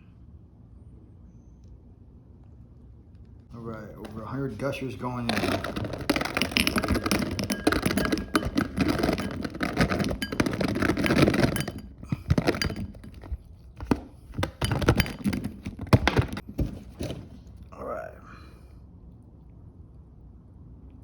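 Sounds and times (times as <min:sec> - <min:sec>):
fruit snacks clattering into container: 0:04.0 - 0:17.3
scattered knocks of pieces handled: 0:04.0 - 0:17.6.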